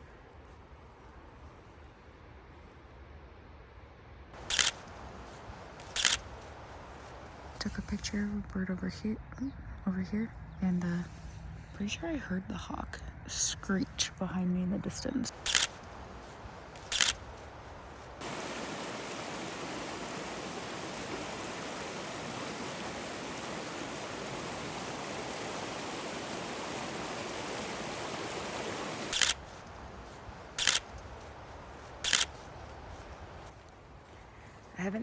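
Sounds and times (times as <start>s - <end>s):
camera shutter clicks: 4.4s - 5.0s, 5.8s - 6.5s, 15.3s - 17.4s, 29.1s - 31.1s, 31.8s - 32.5s
steady hiss: 4.4s - 8.3s, 15.3s - 35.0s.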